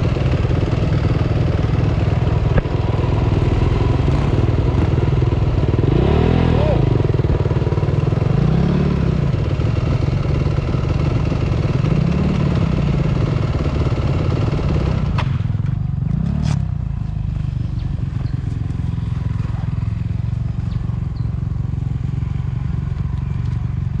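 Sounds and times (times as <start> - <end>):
dirt bike engine revving: 1.8 - 10.5, 11.3 - 15.4.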